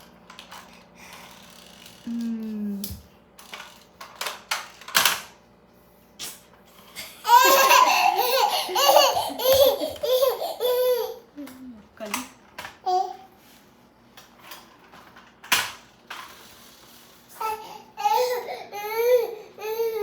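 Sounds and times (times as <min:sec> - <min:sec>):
baby laughing in high squeals: 0:07.2 - 0:11.2.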